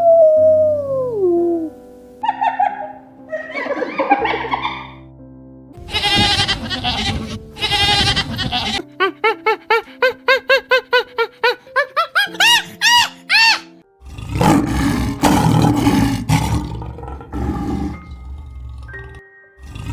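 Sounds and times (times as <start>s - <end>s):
light background music: 0.0s - 19.9s
big cat roaring: 14.0s - 19.9s.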